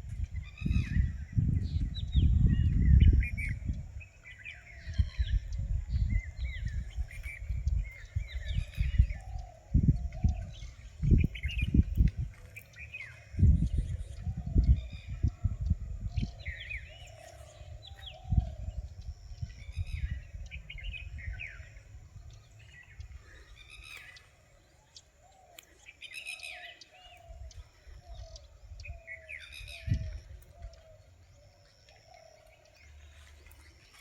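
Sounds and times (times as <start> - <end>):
birds chirping and whistling: 0.0 - 34.0.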